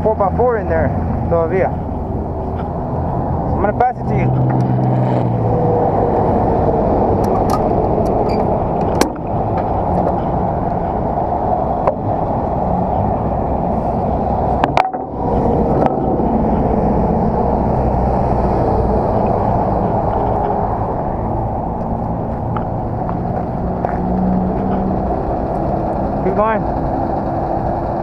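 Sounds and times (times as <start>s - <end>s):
diesel truck engine idling: 5.8s - 28.0s.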